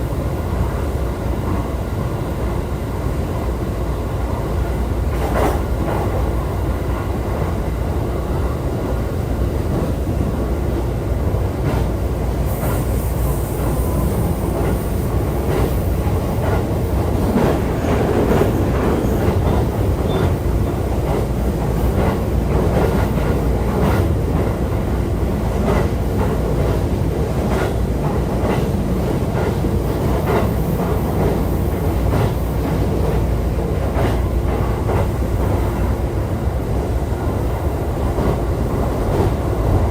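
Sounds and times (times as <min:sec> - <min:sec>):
train rumbling: 0:00.0 - 0:39.9.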